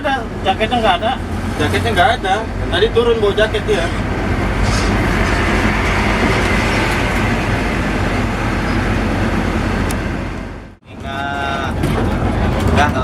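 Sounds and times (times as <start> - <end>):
bus engine hum: 0.0 - 13.0
road noise rush: 0.0 - 13.0.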